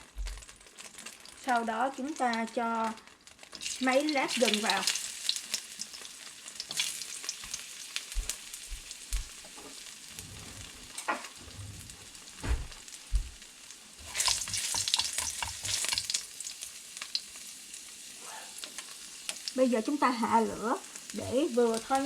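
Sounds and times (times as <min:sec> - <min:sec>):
ginger sizzling in hot oil: 0:00.0 - 0:22.0
low thumps: 0:10.2 - 0:13.4.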